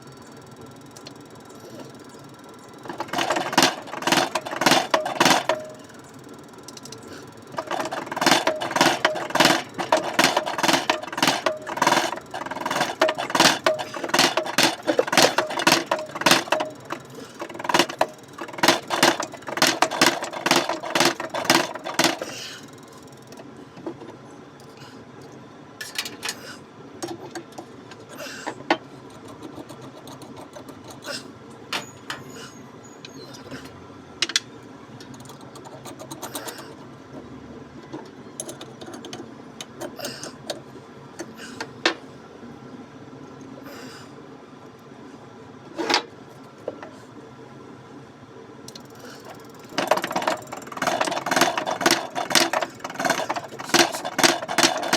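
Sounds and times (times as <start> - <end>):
hand tool clicking on metal: 6.7 - 22.4.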